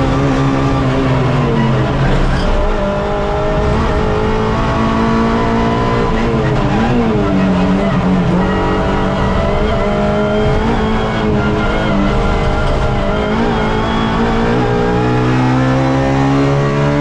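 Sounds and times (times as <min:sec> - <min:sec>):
race car engine at high revs: 0:00.0 - 0:17.0.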